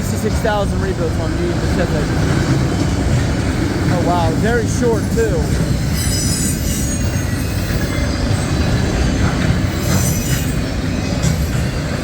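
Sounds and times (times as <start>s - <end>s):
train wheels rumbling on rail: 0.0s - 12.0s
high wheel squeal: 4.4s - 12.0s.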